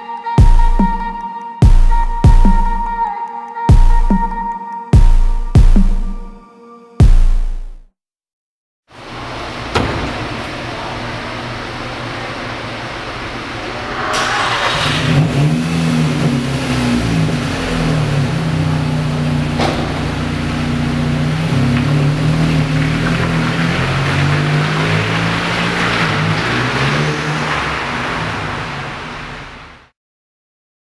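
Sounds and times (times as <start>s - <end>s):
car engine starting and revving: 9.0s - 29.9s.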